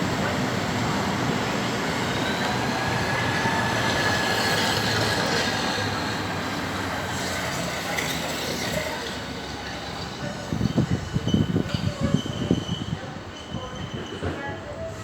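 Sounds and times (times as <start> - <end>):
train wheels rumbling on rails: 0.0 - 15.0
high wheel squeal: 11.1 - 14.3.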